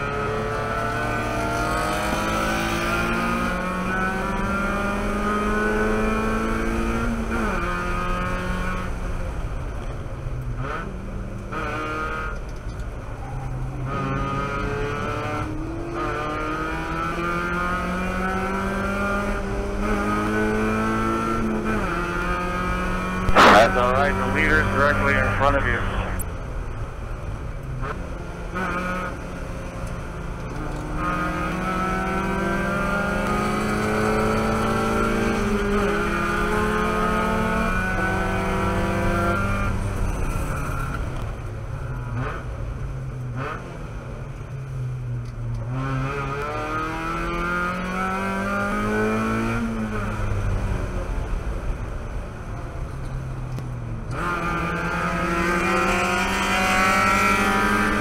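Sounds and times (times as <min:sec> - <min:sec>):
road noise: 0:00.0 - 0:58.0
race car engine revving: 0:13.8 - 0:26.3, 0:30.5 - 0:41.2, 0:54.1 - 0:58.0.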